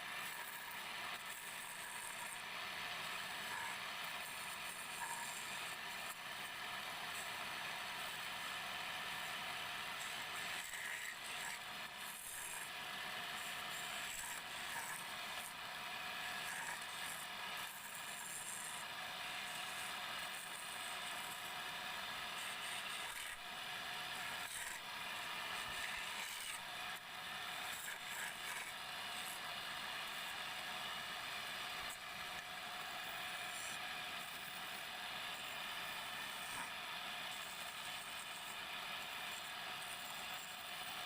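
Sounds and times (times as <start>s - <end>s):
turning tool scraping wood: 0.0s - 21.5s, 22.2s - 30.6s
wood lathe running: 0.0s - 41.0s.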